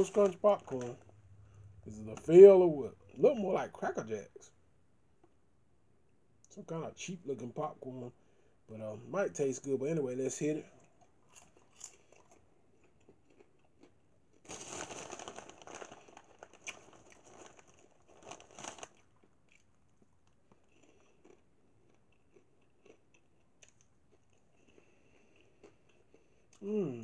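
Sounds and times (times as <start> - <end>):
popcorn crunching: 0.0 - 2.3, 10.9 - 27.0.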